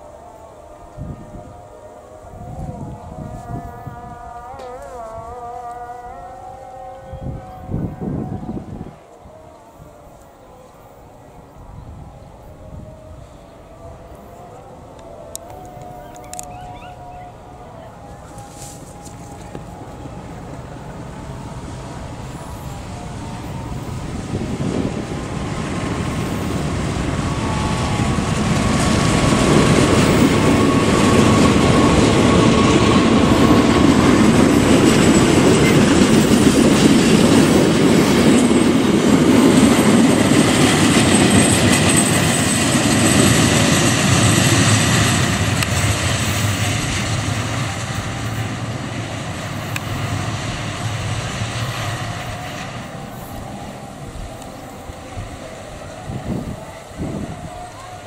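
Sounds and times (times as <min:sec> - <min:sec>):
thin steady whine: 0:00.0 - 0:58.0
train wheels rumbling on rails: 0:10.6 - 0:58.0.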